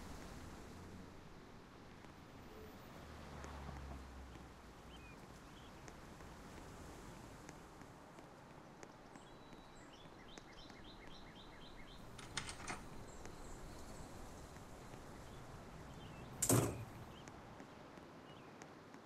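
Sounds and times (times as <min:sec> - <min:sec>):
bird chirping: 0:09.2 - 0:14.4.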